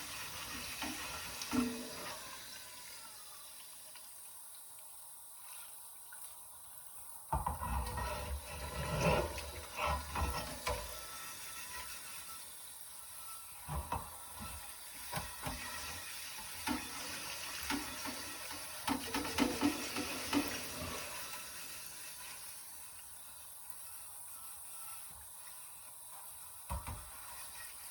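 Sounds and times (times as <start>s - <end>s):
tap water running into sink: 0.0s - 4.9s, 7.3s - 24.0s, 25.0s - 27.9s
cast iron scraping and clunking: 7.3s - 11.0s, 16.6s - 21.4s.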